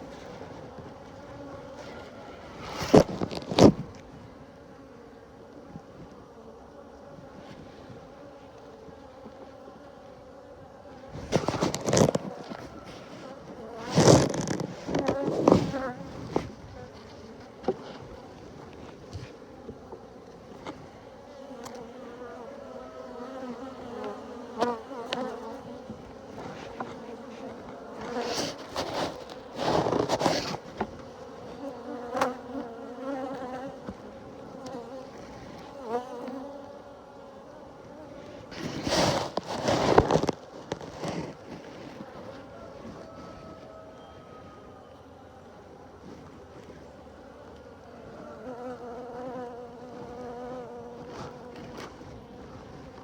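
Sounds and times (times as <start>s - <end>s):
honeybees buzzing: 0.0s - 18.4s, 19.2s - 53.0s
suit rustling against phone: 28.2s - 30.8s, 38.5s - 42.3s.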